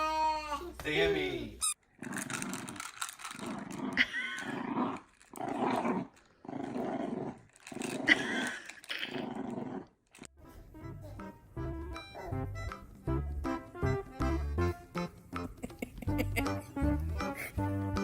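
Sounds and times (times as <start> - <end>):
dog growling: 2.0 - 10.3
music with steady notes: 10.7 - 18.0.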